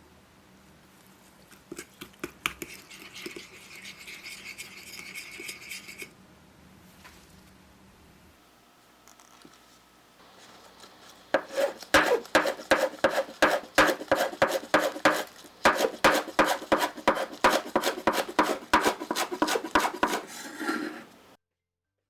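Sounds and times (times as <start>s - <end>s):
knife chopping on cutting board: 11.4s - 20.4s.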